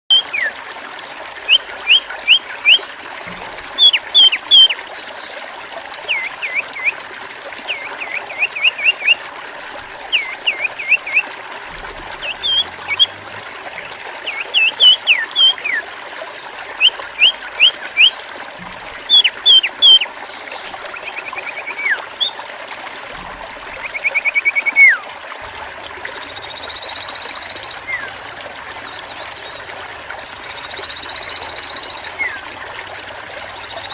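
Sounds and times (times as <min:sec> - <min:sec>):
trickle of splashing water: 0:00.1 - 0:33.9
songbird chirping and whistling: 0:03.8 - 0:04.8, 0:10.1 - 0:11.2, 0:12.1 - 0:13.1, 0:13.8 - 0:15.8, 0:19.1 - 0:20.1, 0:23.8 - 0:25.0, 0:30.8 - 0:32.4
buzzy bird trills: 0:10.1 - 0:15.8.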